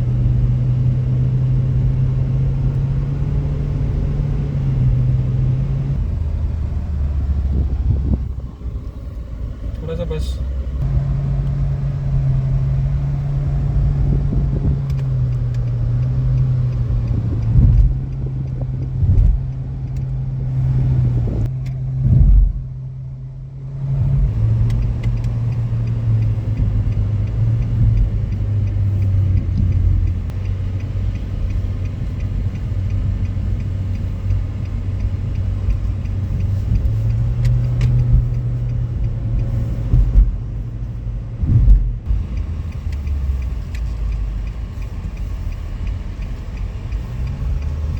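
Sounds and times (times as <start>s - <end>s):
car engine droning: 0.0s - 47.9s
road noise: 0.0s - 47.9s
loud low thumps: 20.4s - 22.7s, 39.8s - 40.5s, 41.3s - 42.2s.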